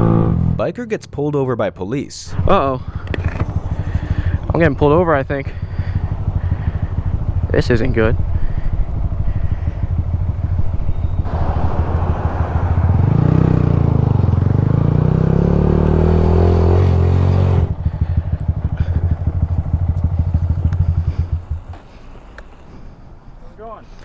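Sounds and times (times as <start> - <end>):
motorcycle engine running: 5.6 - 10.7, 17.5 - 21.6.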